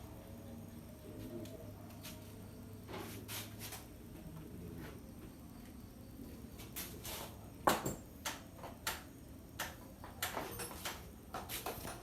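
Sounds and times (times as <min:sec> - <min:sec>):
clicks and knocks on electrical panel: 0:07.6 - 0:12.0.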